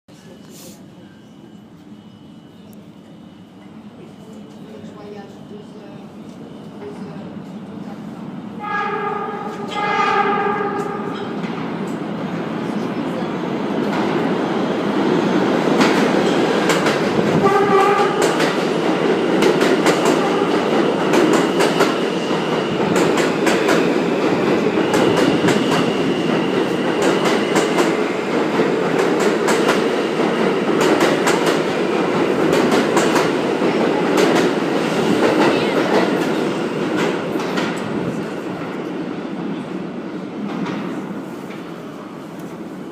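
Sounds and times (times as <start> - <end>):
train wheels rumbling on rail: 4.2 - 42.9
rail joint clicks: 9.4 - 12.1, 15.7 - 33.4, 35.2 - 38.0.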